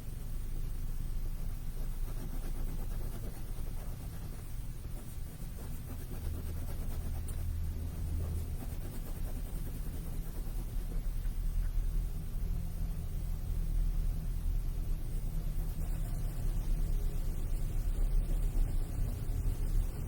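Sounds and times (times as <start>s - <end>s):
pen scratching on paper: 1.4s - 11.2s, 15.4s - 16.9s
low rumble: 5.9s - 20.0s.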